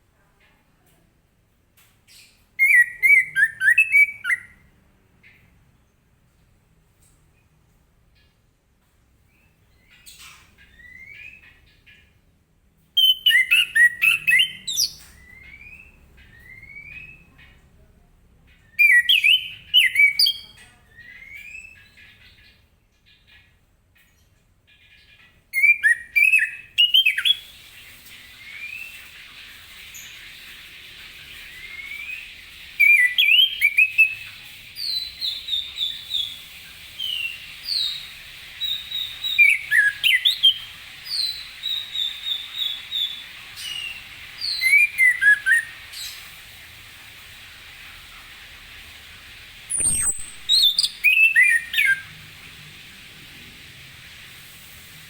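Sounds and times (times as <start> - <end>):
thrush singing whistled phrases: 2.6 - 4.6, 13.0 - 17.3, 18.8 - 21.8, 25.6 - 27.5, 31.4 - 36.4, 37.0 - 45.8, 49.7 - 52.2.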